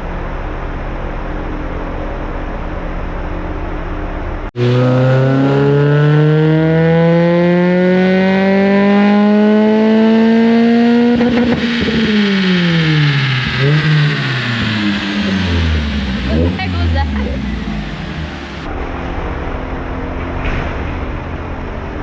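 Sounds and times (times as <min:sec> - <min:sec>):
car engine revving on dyno: 0:04.6 - 0:18.8.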